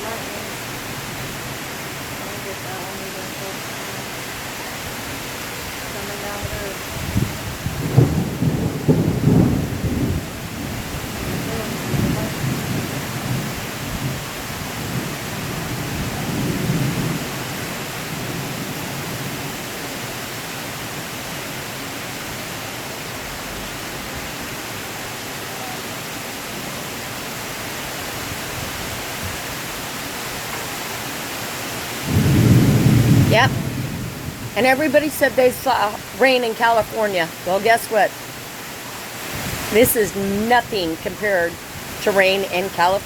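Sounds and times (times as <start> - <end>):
heavy rain pouring: 0.0 - 43.0
thunder rumbling: 4.9 - 20.0, 31.9 - 38.1.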